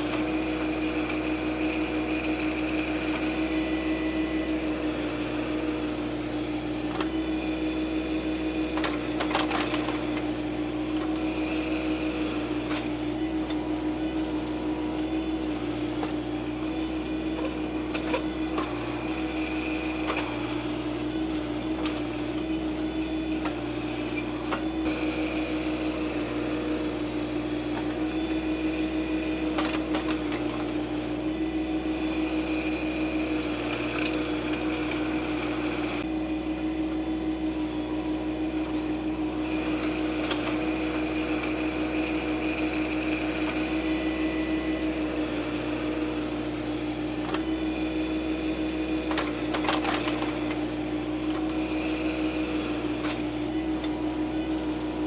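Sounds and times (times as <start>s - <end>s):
tractor diesel engine running: 0.0s - 43.9s
higher whining tone: 8.7s - 55.0s.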